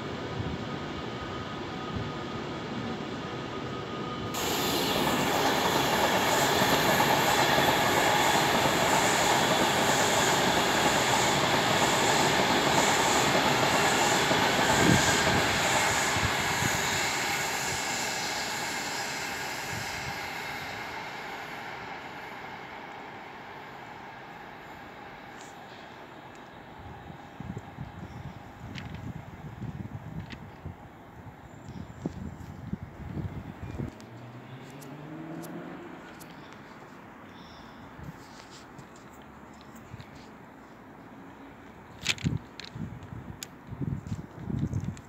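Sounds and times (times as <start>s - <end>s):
passenger train passing: 0.0s - 45.0s.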